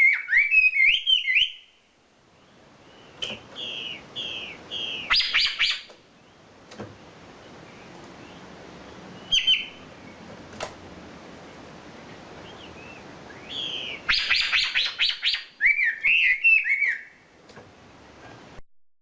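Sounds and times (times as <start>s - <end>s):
bird chirping and whistling: 0.0s - 1.7s, 2.9s - 5.9s, 9.2s - 9.9s, 12.5s - 17.2s.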